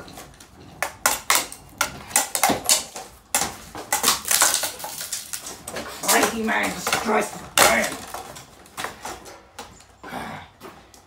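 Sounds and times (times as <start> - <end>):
ceiling fan being smashed: 0.8 - 8.9.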